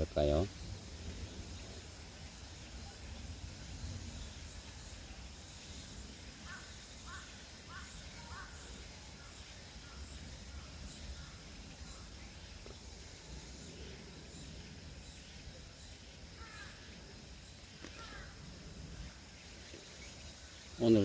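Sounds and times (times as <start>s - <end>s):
bird calling: 16.3s - 17.0s, 17.8s - 19.9s.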